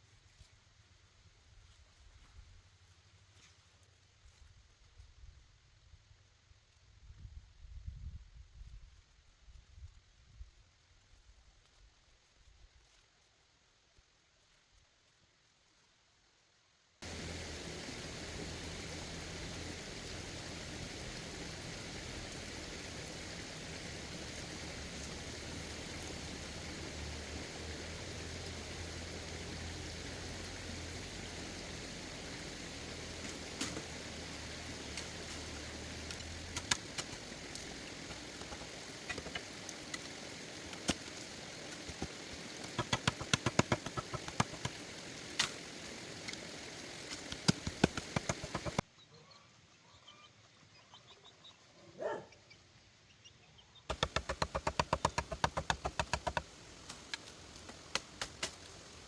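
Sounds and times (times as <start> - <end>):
low motor hum: 17.0 - 38.8
hiss: 17.0 - 48.8, 53.9 - 59.0
sharp knocks and clicks: 53.9 - 56.5.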